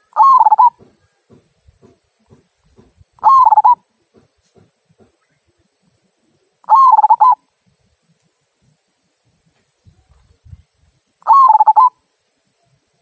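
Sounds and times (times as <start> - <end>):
dove cooing: 0.0 - 0.9, 3.2 - 3.8, 6.6 - 7.4, 11.2 - 12.0.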